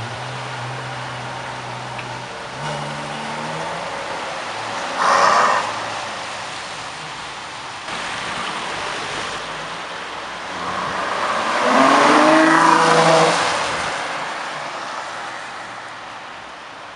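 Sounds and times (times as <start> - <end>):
sports car engine revving: 10.5 - 13.8.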